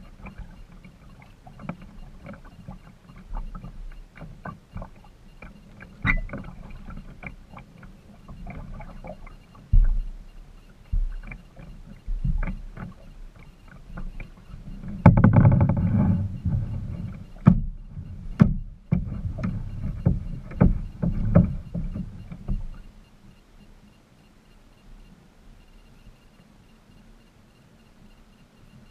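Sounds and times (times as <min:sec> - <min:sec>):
paddle knocking on kayak hull: 0:10.9 - 0:13.1, 0:15.0 - 0:22.8
grinding scrape: 0:14.9 - 0:17.4.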